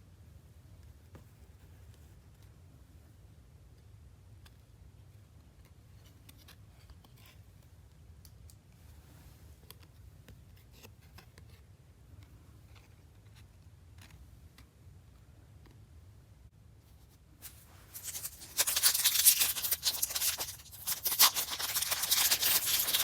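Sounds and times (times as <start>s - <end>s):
card pack rustle: 17.4s - 23.0s.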